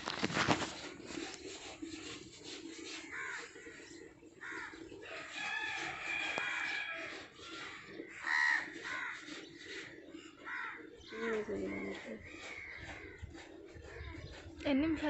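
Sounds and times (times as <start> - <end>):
crows cawing: 2.7 - 14.4.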